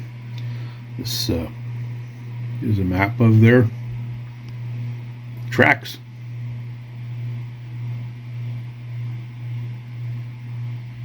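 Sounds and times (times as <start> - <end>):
machine humming with slow throb: 0.0 - 11.0.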